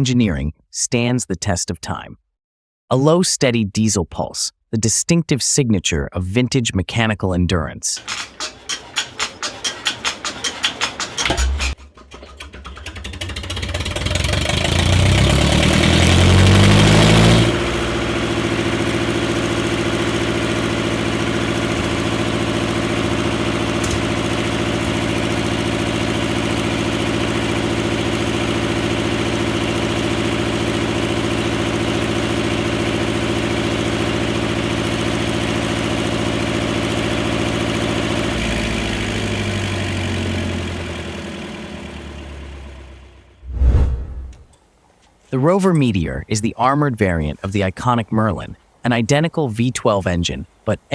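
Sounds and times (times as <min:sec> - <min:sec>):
diesel engine starting and idling: 0:08.0 - 0:43.4.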